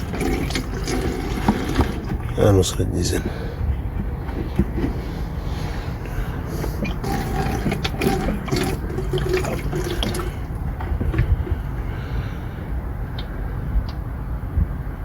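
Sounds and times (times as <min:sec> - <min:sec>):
air bubbling through fuel: 0:00.0 - 0:02.5, 0:03.7 - 0:14.0
fuel gushing into bucket: 0:00.0 - 0:03.4, 0:04.0 - 0:12.4.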